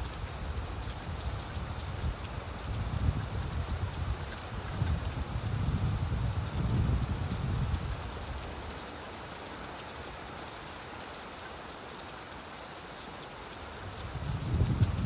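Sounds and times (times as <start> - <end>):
steady rain falling: 0.0 - 15.0
low rumble of thunder: 2.8 - 8.0, 14.0 - 15.0.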